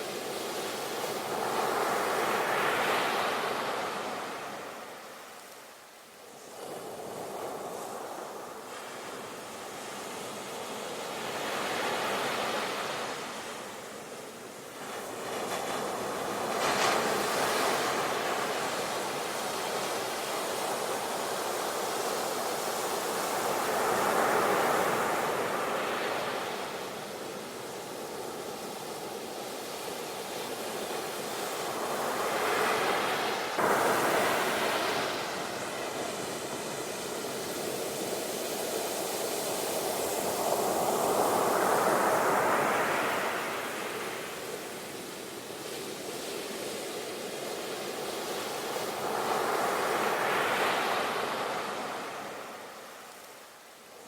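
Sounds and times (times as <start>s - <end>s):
waves breaking on shore: 14.7s - 53.5s.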